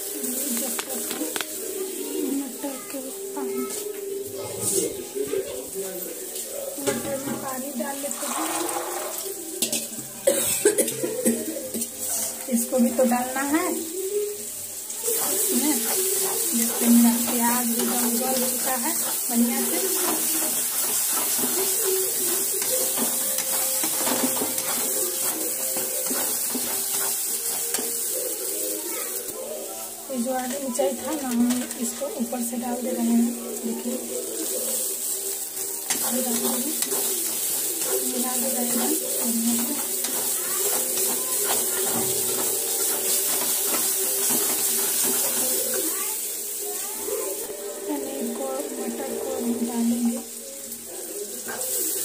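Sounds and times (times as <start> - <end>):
paste sizzling in a pan: 0.0 - 52.0
metal spatula scraping a pan: 6.8 - 11.1, 11.7 - 13.4, 15.0 - 28.6, 34.0 - 46.0.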